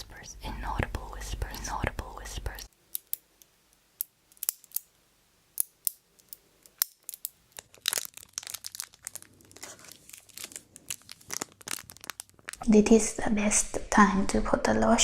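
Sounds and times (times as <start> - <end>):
sharp clicks and crackles: 2.5 - 4.9, 5.6 - 12.6
crinkling: 5.6 - 12.7.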